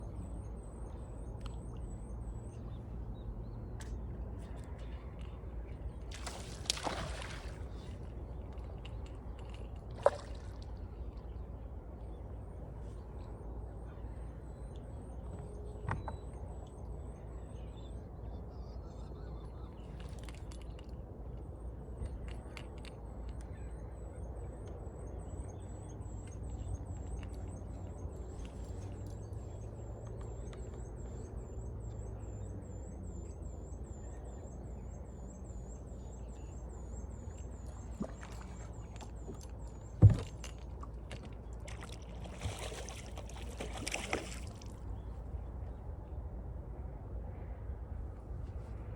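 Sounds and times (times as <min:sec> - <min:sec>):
steady low rumble: 0:44.6 - 0:48.9.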